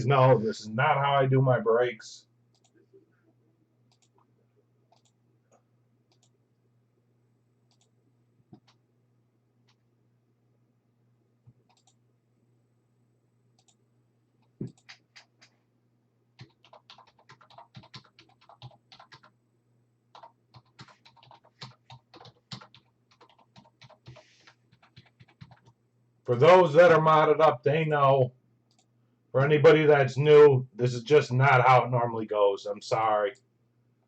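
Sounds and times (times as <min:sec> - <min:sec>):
typing on computer keyboard: 0:14.6 - 0:15.6, 0:16.4 - 0:19.4, 0:20.1 - 0:25.8.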